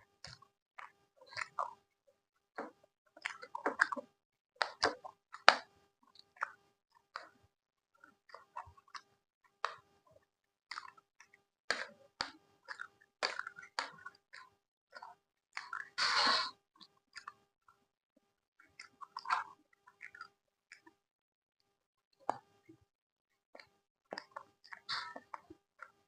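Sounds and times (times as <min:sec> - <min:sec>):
person chewing food: 0:00.2 - 0:01.8, 0:02.6 - 0:07.4, 0:08.0 - 0:17.4, 0:18.6 - 0:21.0, 0:23.6 - 0:26.0
wet mouth clicks and smacks: 0:10.7 - 0:11.0.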